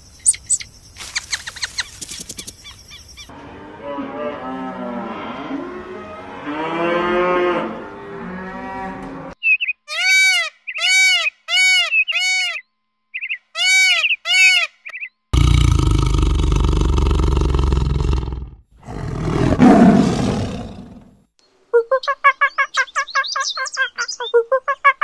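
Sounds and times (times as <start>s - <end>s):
cattle mooing: 3.3s - 9.4s
peacock calling: 9.4s - 15.1s, 21.8s - 25.0s.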